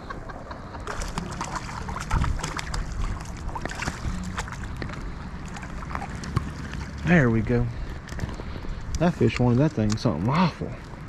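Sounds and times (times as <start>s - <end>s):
wind buffeting microphone: 0.0s - 6.0s
creek running: 0.0s - 11.0s.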